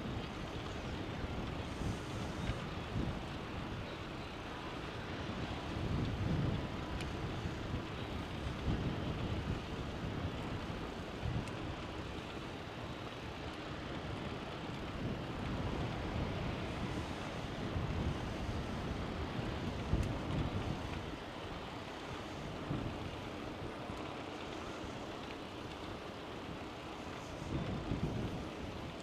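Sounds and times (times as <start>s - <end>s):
wind rushing over microphone: 0.0s - 29.0s
faint clicks: 19.6s - 29.0s.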